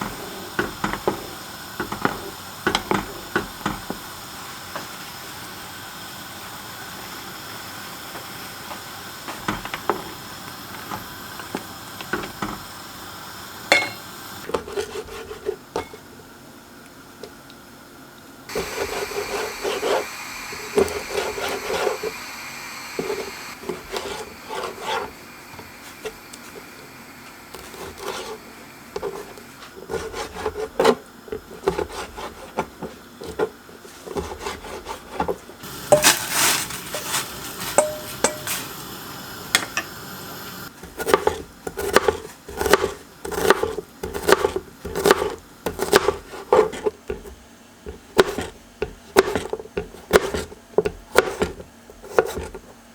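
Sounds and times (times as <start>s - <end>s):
knife scraping on cutting board: 13.7s - 16.0s, 18.5s - 22.2s, 23.0s - 25.2s, 27.5s - 38.7s, 40.8s - 52.7s
knife chopping on wooden board: 18.5s - 22.1s, 23.0s - 26.2s, 29.0s - 36.8s, 40.8s - 52.6s.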